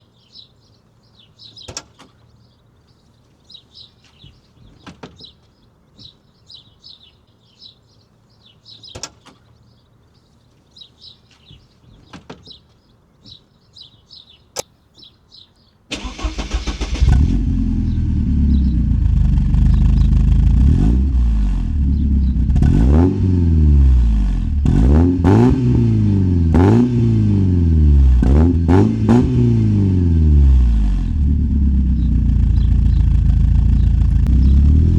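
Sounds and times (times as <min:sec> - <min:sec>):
car engine starting and revving: 0:15.9 - 0:34.9
faint bird chirps: 0:31.9 - 0:34.7.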